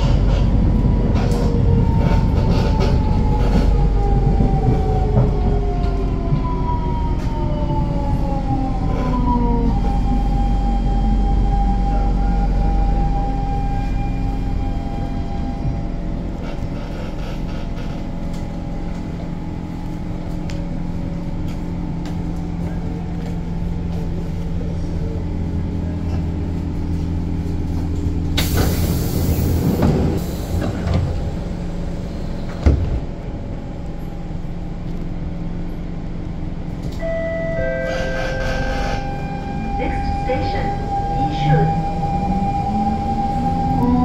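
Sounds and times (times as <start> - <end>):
train low hum: 0.0 - 44.0
high tone: 37.0 - 44.0.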